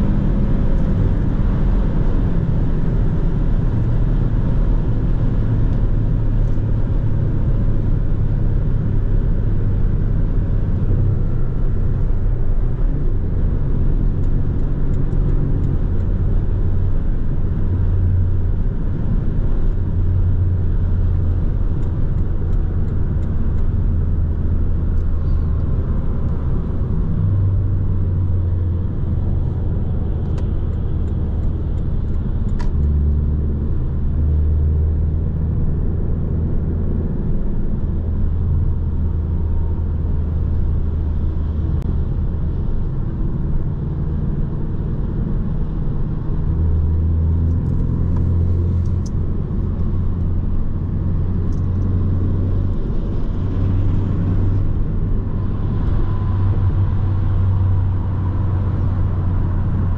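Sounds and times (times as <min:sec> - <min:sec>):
car engine drone: 0:00.0 - 0:59.9
road noise: 0:00.0 - 0:59.9.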